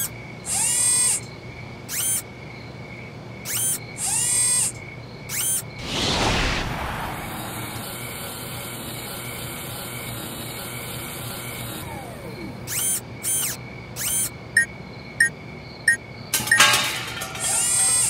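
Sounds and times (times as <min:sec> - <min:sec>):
mechanical whirs of security camera: 0:00.0 - 0:02.3, 0:03.4 - 0:05.6, 0:08.6 - 0:15.3, 0:17.4 - 0:18.0
falling tone: 0:05.8 - 0:08.7
whoosh: 0:05.8 - 0:08.8.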